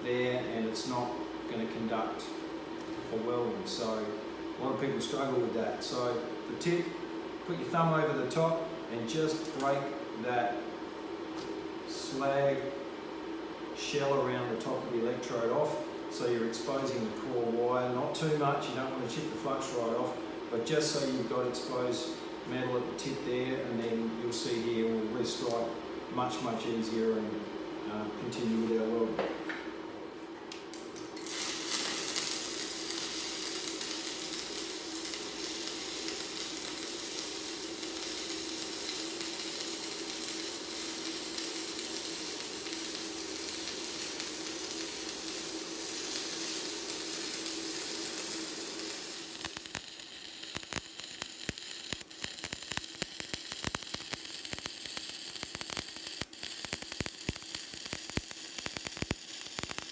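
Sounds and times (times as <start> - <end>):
welding arc crackling sizzle: 0.0 - 12.8, 30.5 - 59.9
welder hum: 0.0 - 29.2, 30.2 - 59.9.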